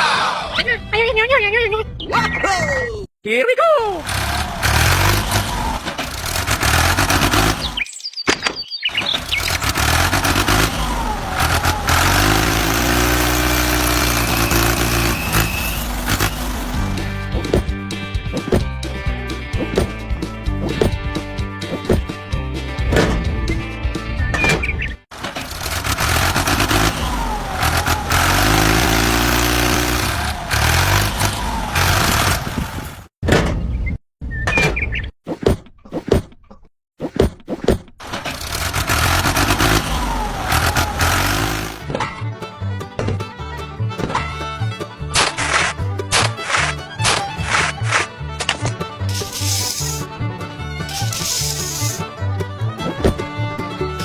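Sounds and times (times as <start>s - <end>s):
tractor engine running: 3.9s - 7.9s, 8.9s - 17.6s, 25.1s - 33.1s, 38.0s - 42.0s.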